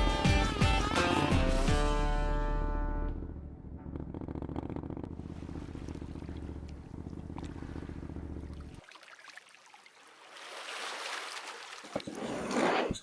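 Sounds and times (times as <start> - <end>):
motorcycle engine idling: 0.1 - 8.8.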